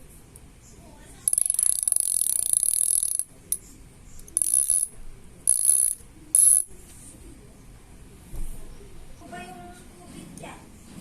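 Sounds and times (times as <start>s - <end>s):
bicycle hub freewheel clicking buzz: 1.2s - 3.3s, 4.3s - 6.7s.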